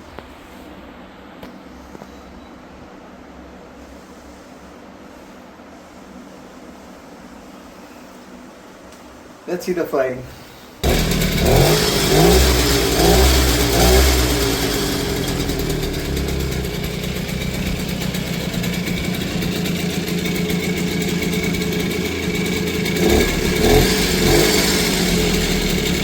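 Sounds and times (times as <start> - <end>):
two-stroke motorcycle engine revving: 10.8 - 26.0.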